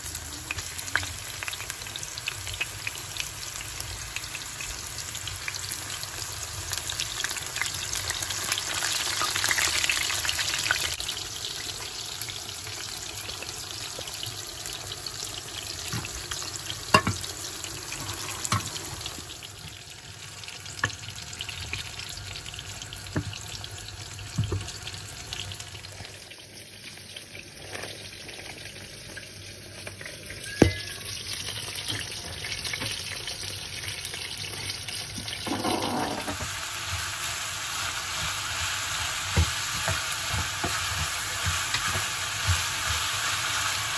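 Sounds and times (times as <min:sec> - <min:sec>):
food sizzling in oil: 0:00.0 - 0:43.9
utensil knocking on pan: 0:16.9 - 0:17.2.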